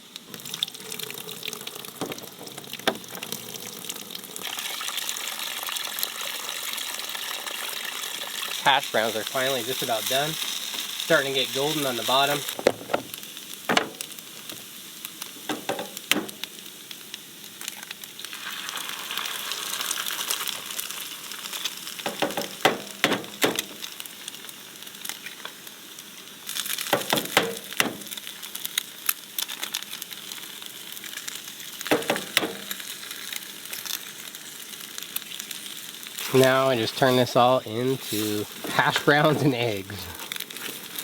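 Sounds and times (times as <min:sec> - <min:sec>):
hash browns sizzling in a pan: 0:00.0 - 0:41.0
utensil scraping and tapping pan: 0:15.5 - 0:16.5, 0:22.1 - 0:23.8, 0:27.0 - 0:28.2, 0:31.9 - 0:32.7.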